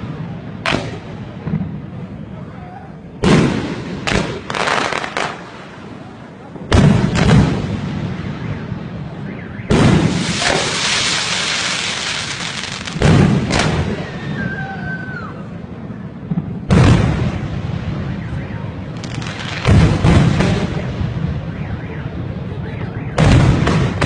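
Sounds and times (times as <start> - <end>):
fireworks bursting and crackling: 0.0 - 2.4, 3.0 - 21.5, 22.1 - 24.0.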